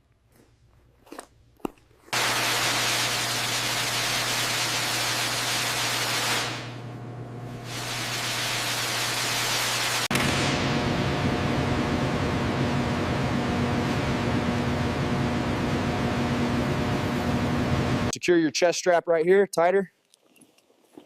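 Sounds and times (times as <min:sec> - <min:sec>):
aircraft engines drone in cabin: 0:06.7 - 0:18.1.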